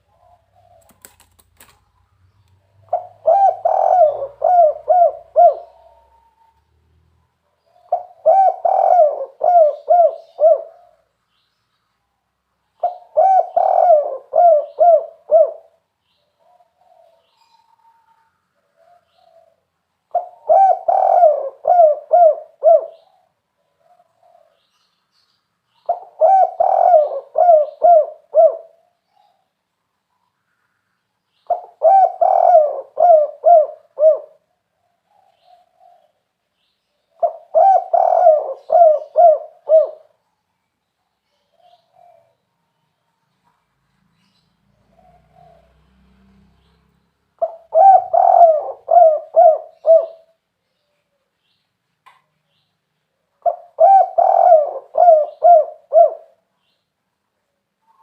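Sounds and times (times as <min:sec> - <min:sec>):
dove cooing: 0:00.0 - 0:01.7, 0:02.8 - 0:06.6, 0:07.7 - 0:11.1, 0:12.8 - 0:24.7, 0:25.8 - 0:29.4, 0:31.5 - 0:36.2, 0:37.1 - 0:40.2, 0:41.4 - 0:42.4, 0:44.8 - 0:45.8, 0:47.4 - 0:50.4, 0:53.4 - 0:56.5.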